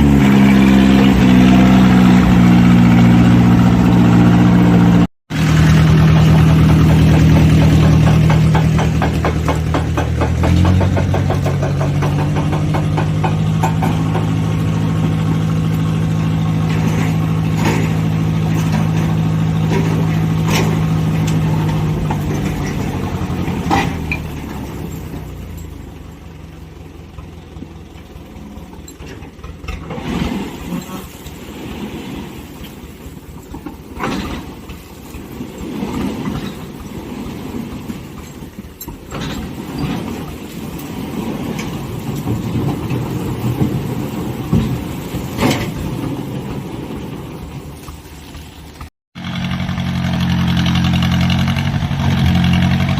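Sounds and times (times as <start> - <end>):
diesel engine idling: 0.0 - 30.0
scattered knocks: 6.0 - 14.6.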